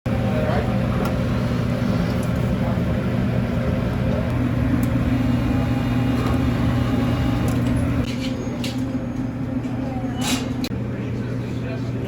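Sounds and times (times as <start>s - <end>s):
machine humming: 0.1s - 9.6s.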